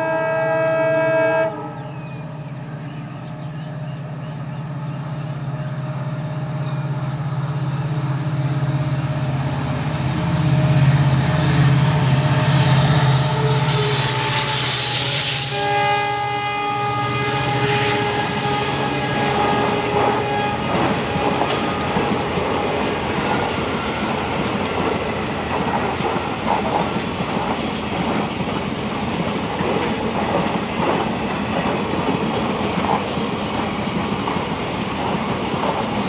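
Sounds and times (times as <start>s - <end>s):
locomotive horn: 0.0s - 1.8s, 12.0s - 24.1s
train coaches rumbling: 0.0s - 36.0s
wheels clicking over rail joints: 29.2s - 32.2s.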